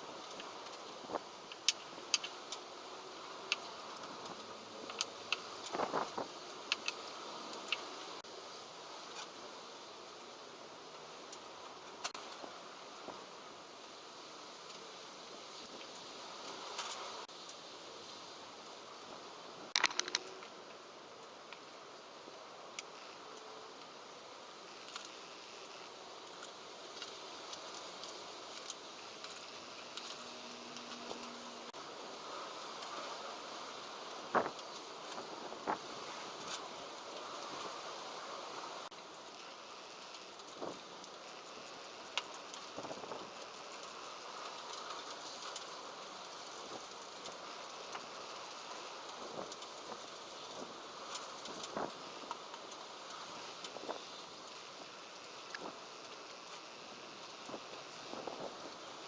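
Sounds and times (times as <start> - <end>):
wind noise hiss: 0.0 - 59.0
wind noise: 3.2 - 7.8, 55.4 - 59.0.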